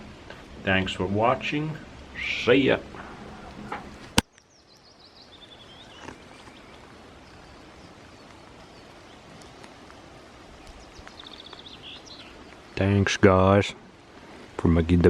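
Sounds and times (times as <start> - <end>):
faint outdoor background noise: 0.0 - 15.0
small bird chirping: 3.2 - 12.8.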